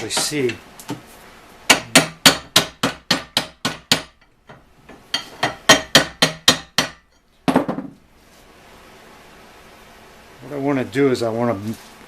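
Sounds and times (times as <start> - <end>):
hammer striking metal: 1.7 - 4.3, 5.1 - 7.1.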